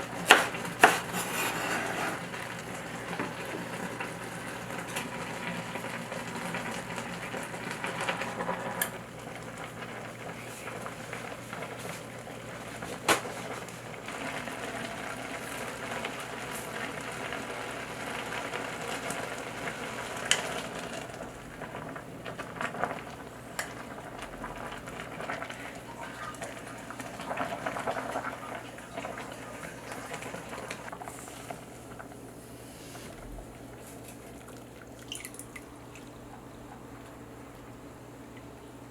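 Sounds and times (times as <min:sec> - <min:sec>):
food boiling hiss: 0:00.0 - 0:38.9.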